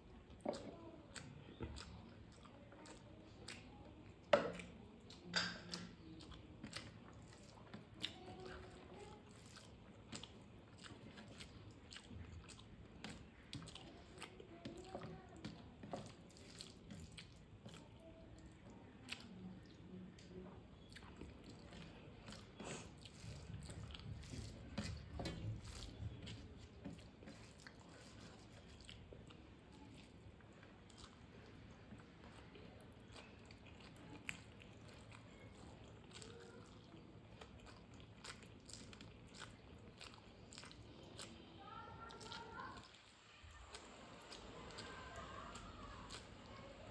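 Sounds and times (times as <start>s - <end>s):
person chewing and crunching: 0.4s - 41.4s.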